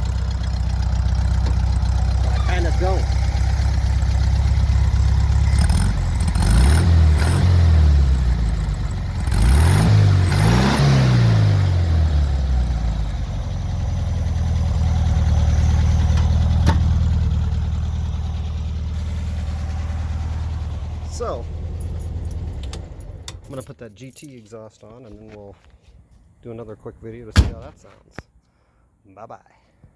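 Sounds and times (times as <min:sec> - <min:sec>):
car engine revving and idling: 0:00.0 - 0:23.6.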